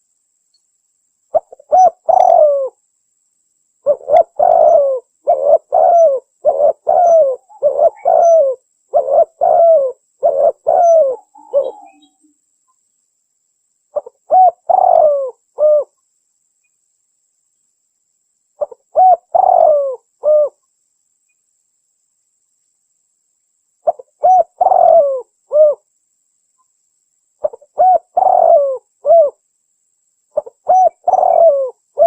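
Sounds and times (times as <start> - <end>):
dove cooing: 1.3 - 2.8, 3.8 - 12.2, 14.0 - 16.0, 18.6 - 20.6, 23.8 - 25.8, 27.4 - 29.4, 30.4 - 32.0.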